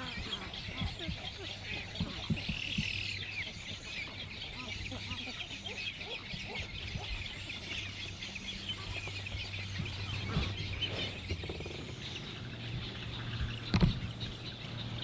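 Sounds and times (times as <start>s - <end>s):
many birds chirping: 0.0s - 15.0s.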